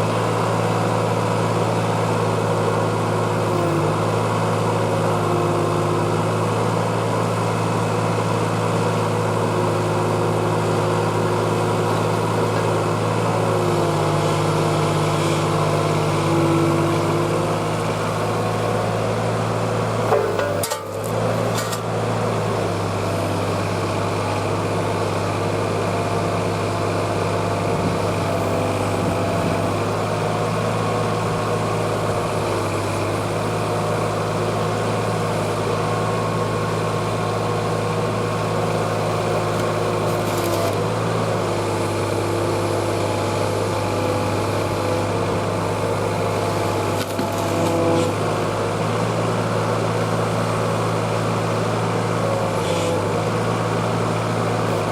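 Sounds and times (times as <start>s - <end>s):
diesel engine running: 0.0s - 54.9s
hydraulics operating: 37.5s - 42.1s.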